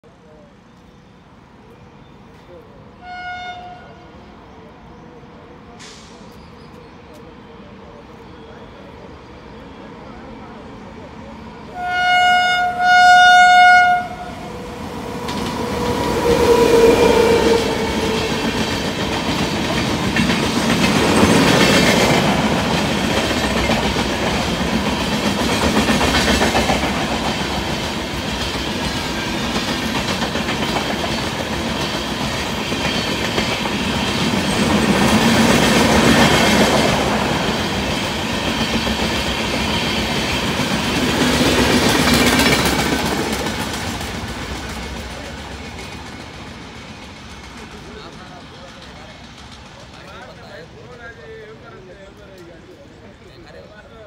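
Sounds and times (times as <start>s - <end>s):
train passing with wheel clatter: 0.1s - 54.0s
train horn blasts: 3.0s - 4.2s, 11.7s - 18.6s.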